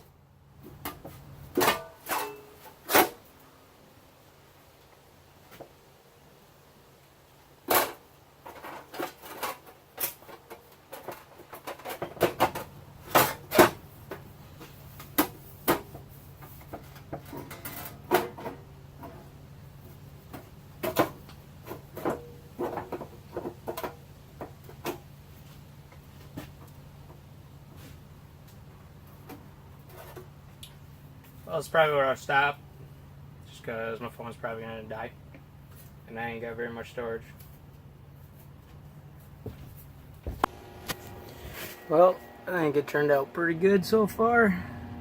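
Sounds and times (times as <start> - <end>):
knocks and clanks of metal: 0.7 - 3.2
low steady hum: 11.0 - 45.0.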